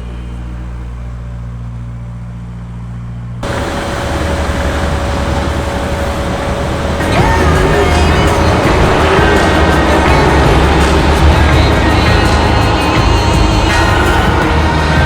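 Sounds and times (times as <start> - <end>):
low engine hum: 0.0 - 15.0
train rushing past with whine: 3.4 - 15.0.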